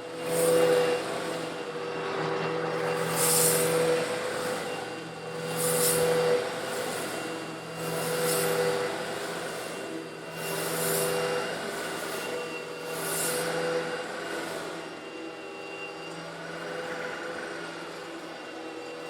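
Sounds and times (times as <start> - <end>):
vacuum cleaner running: 0.0 - 19.0
grit hissing up a hose: 2.7 - 11.2.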